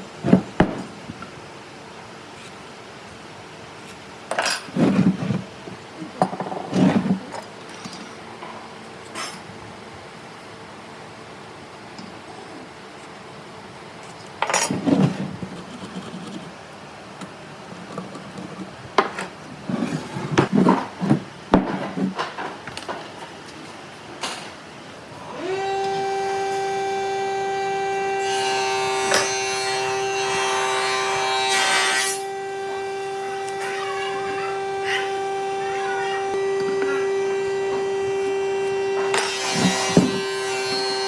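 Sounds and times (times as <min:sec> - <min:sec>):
electric power tool running: 0:25.2 - 0:41.0.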